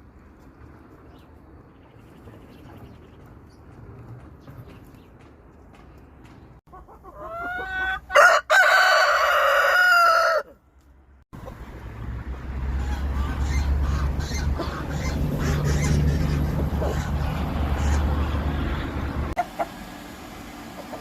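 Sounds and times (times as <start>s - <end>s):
rooster crowing: 7.3s - 10.6s.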